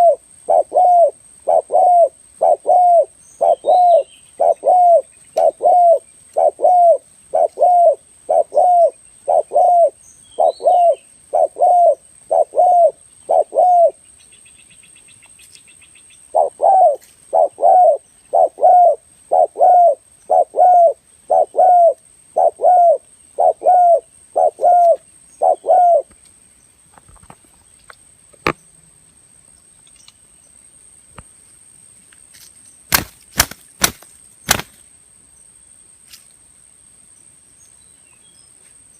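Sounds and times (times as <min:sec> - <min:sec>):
dove cooing: 0:00.0 - 0:14.0, 0:16.3 - 0:26.1.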